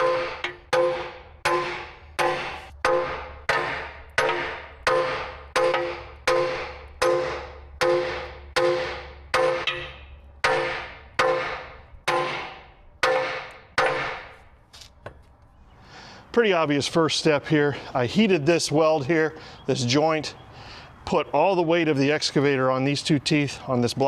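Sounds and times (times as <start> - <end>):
hammer clanging on steel: 0.0 - 15.2.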